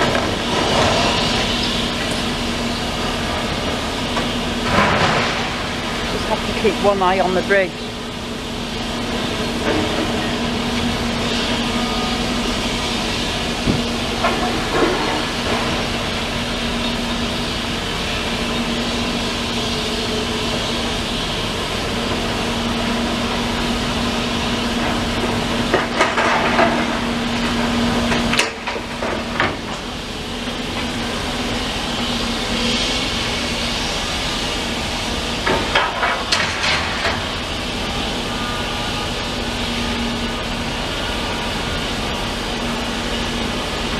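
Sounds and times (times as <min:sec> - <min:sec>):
demolition machinery humming: 0:00.0 - 0:43.9
metal and rubble clanking: 0:03.2 - 0:06.8, 0:24.8 - 0:29.9, 0:35.4 - 0:37.4.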